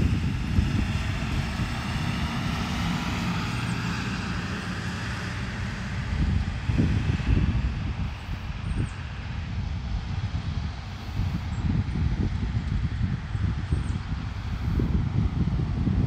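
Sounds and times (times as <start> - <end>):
drone propellers whirring: 0.0 - 16.0
wind buffeting microphone: 0.0 - 16.0.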